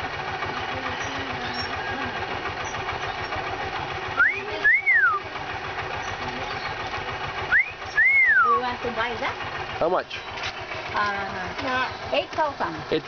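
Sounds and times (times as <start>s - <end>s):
bird wolf whistle: 4.2s - 5.2s, 7.5s - 8.6s.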